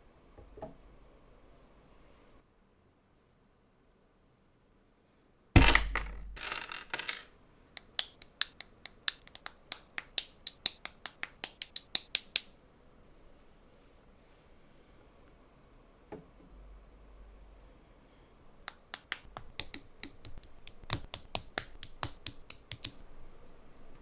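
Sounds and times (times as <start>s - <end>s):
plastic pieces clattering: 5.6s - 7.3s.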